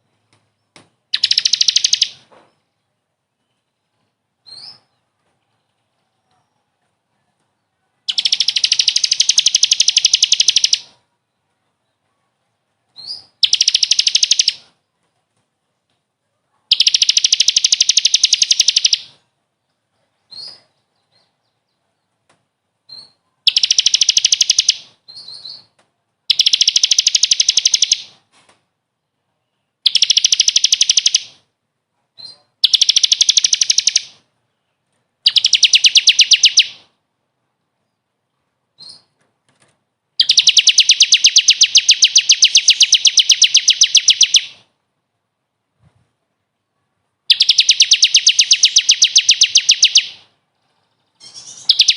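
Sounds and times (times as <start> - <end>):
songbird high trill: 1.2 - 2.2, 8.1 - 10.9, 16.7 - 19.2, 23.0 - 25.7, 26.3 - 28.2, 29.9 - 31.4, 32.6 - 34.2, 35.3 - 36.8, 40.2 - 44.6, 47.3 - 50.3, 51.2 - 51.9.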